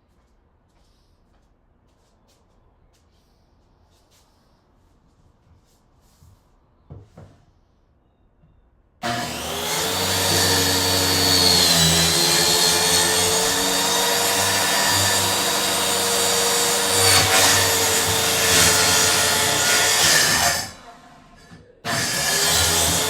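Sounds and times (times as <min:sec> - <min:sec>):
circular saw cutting plywood: 0:09.0 - 0:23.0.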